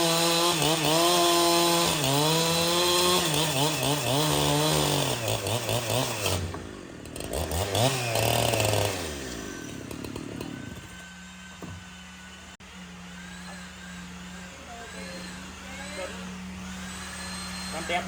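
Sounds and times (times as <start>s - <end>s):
chainsaw engine revving: 0.0s - 18.0s.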